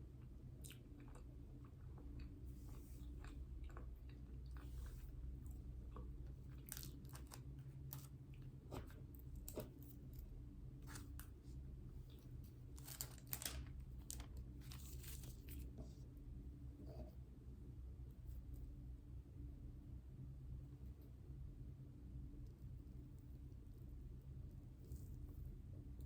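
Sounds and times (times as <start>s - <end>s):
low steady hum: 0.0s - 26.0s
crisp eating crunches: 5.9s - 8.1s.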